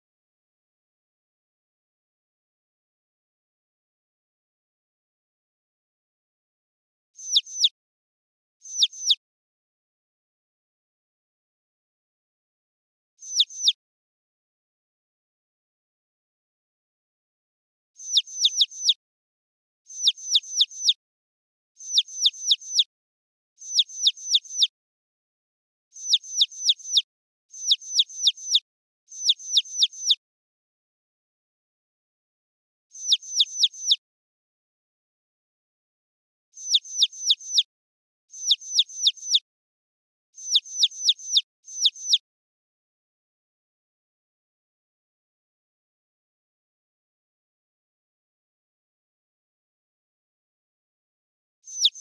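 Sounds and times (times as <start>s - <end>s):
high bird-like chirping: 7.2s - 7.7s, 8.6s - 9.2s, 13.2s - 13.8s, 18.0s - 19.0s, 19.9s - 21.0s, 21.8s - 22.9s, 23.6s - 24.7s, 26.0s - 30.2s, 32.9s - 34.0s, 36.6s - 37.7s, 38.3s - 39.4s, 40.4s - 42.2s, 51.7s - 52.0s.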